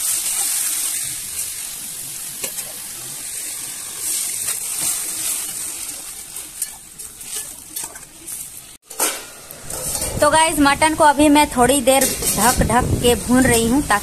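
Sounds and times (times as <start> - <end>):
meat sizzling in oil: 0.0 - 8.8
metal spatula scraping a pan: 4.0 - 10.5, 11.9 - 12.8.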